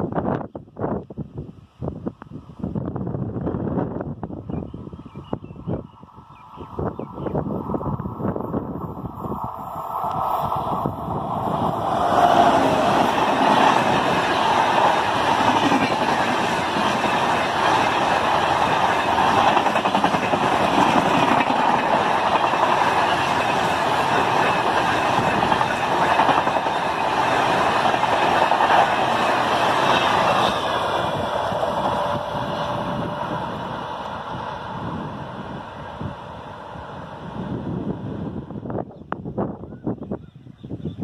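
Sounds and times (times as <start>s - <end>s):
train wheels rushing on rails: 6.5s - 38.8s.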